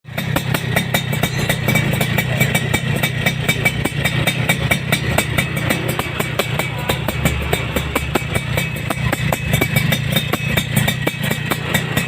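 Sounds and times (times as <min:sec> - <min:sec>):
two-stroke motorcycle engine popping: 0:00.0 - 0:12.0.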